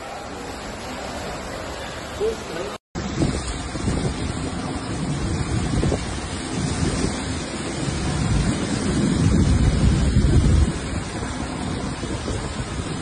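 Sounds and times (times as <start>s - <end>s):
wind buffeting microphone: 3.0s - 13.0s.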